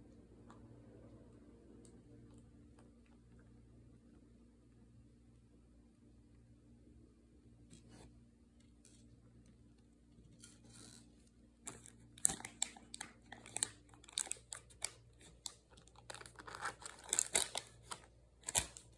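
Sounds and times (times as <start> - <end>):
plastic bag crinkling: 11.7 - 18.9.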